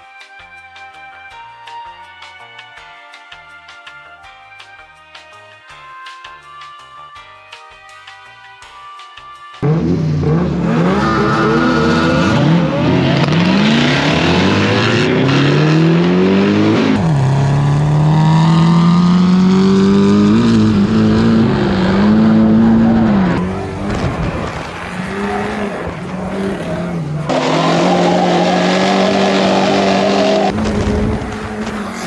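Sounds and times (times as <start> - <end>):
car engine revving hard: 9.6 - 32.0
tyre squeal: 23.4 - 32.0.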